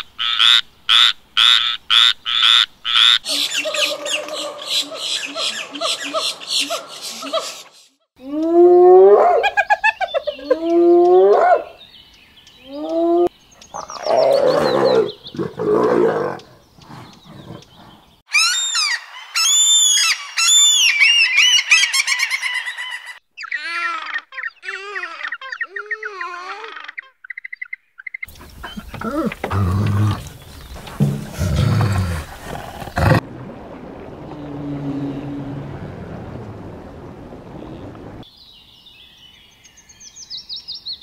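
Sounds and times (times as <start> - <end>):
high-pitched bird calls: 3.0 - 7.9, 18.3 - 30.8
hyenas whooping: 12.7 - 16.5, 28.3 - 33.2
rough noisy animal calls: 28.2 - 33.3.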